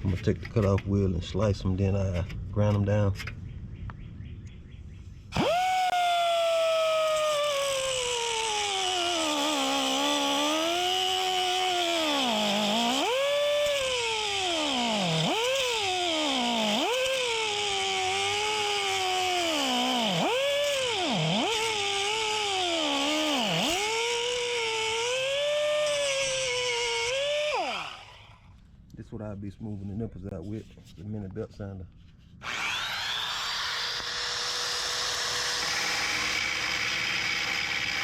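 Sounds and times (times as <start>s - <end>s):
cutoff wheel whining through metal: 5.3s - 28.4s, 32.4s - 38.0s.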